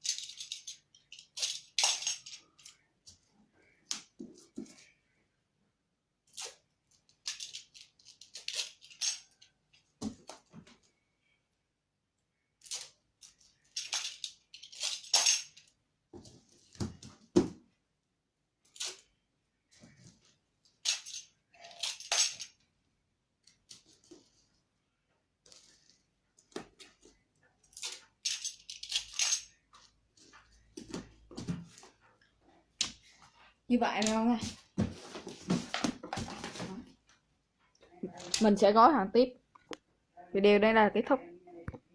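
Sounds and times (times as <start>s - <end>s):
dull knocks of handled items: 16.1s - 17.7s.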